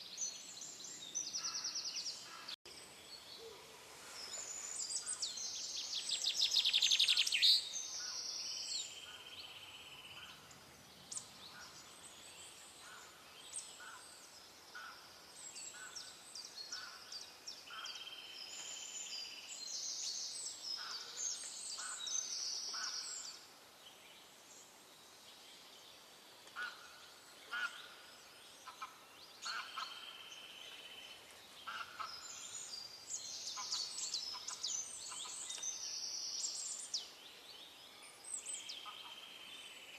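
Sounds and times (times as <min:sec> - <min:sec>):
birds chirping and trilling: 0:00.0 - 0:39.9
faint background hiss: 0:00.0 - 0:39.9.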